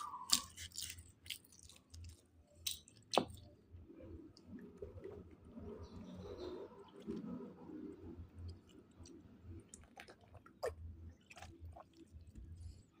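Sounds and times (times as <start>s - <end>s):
person chewing: 0.0s - 3.5s.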